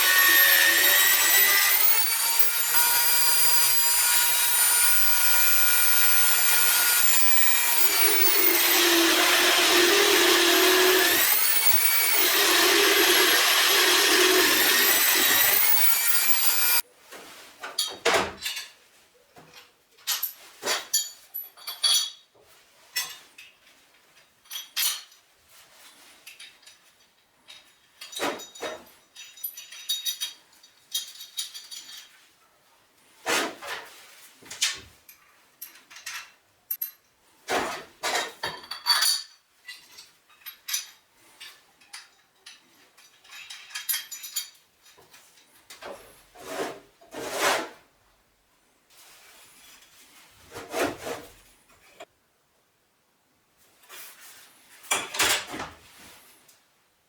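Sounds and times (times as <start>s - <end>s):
metal tools scraping and clinking: 26.3s - 32.2s, 38.5s - 45.0s.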